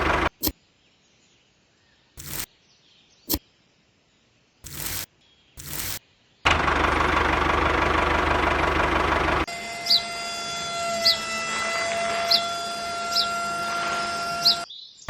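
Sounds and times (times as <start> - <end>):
small engine cranking and running: 0.0 - 0.5, 2.2 - 2.5, 4.6 - 14.7
high chirps: 2.2 - 2.5, 4.6 - 6.0.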